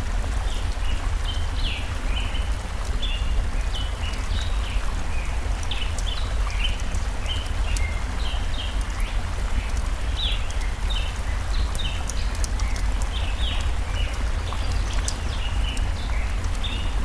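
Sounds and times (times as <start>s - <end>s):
stream water rushing: 0.0s - 17.0s
songbirds chirping: 0.2s - 17.0s
wood fire crackling: 5.6s - 17.0s.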